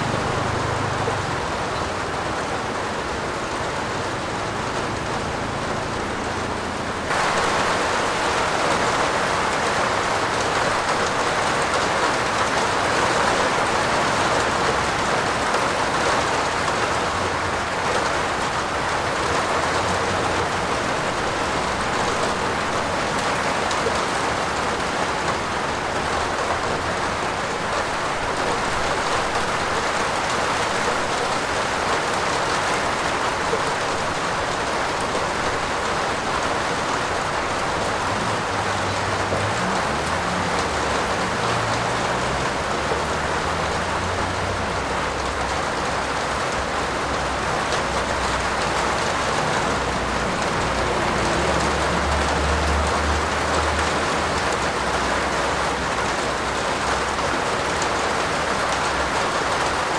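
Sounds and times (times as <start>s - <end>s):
heavy rain on a roof: 0.0s - 59.9s.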